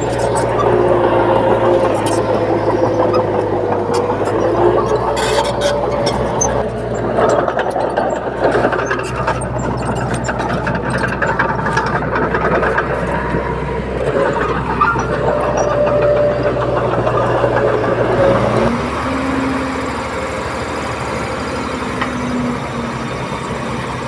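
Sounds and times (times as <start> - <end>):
rapid metallic clatter: 0.0 - 18.6
heavy diesel machinery running: 0.0 - 24.0.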